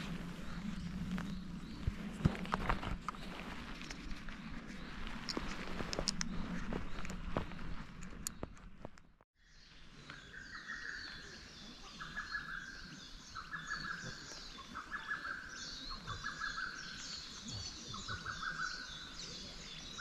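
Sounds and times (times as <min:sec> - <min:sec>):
chorus of high bird calls: 0:09.6 - 0:20.0.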